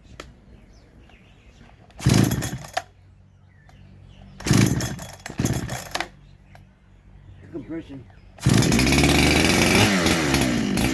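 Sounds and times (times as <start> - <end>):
chainsaw revving: 1.9 - 2.9, 4.4 - 6.1, 8.4 - 10.9
chainsaw idling: 2.0 - 2.9, 4.4 - 6.1, 8.4 - 10.9.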